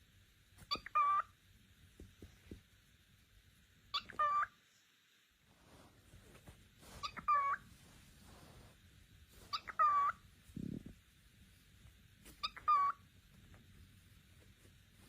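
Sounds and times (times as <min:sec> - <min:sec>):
cockatiel calling: 0:00.6 - 0:01.4, 0:03.9 - 0:04.6, 0:06.9 - 0:07.7, 0:09.4 - 0:10.2, 0:12.3 - 0:13.1.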